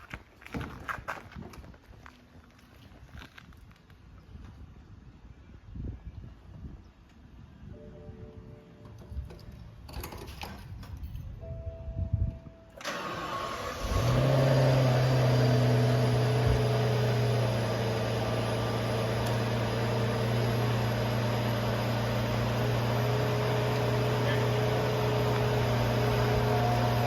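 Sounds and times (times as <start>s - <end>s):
brief tone: 7.6s - 9.0s, 11.4s - 12.8s
car engine idling: 12.8s - 27.0s.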